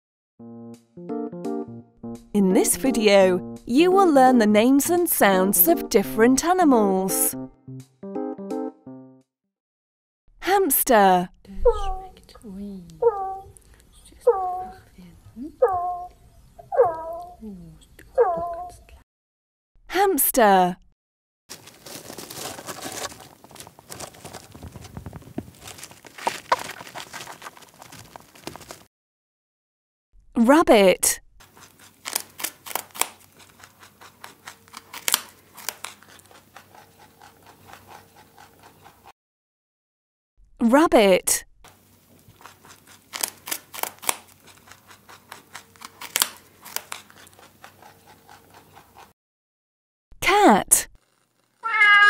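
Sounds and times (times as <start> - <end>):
hamster scrabbling in bedding: 21.5 - 28.9
rabbits crunching food: 21.5 - 28.9, 31.4 - 39.1, 41.7 - 49.1.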